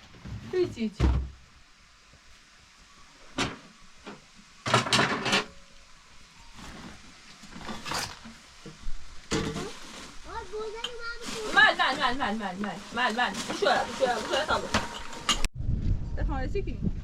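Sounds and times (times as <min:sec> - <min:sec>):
knocks and clatters: 0:03.4 - 0:05.6.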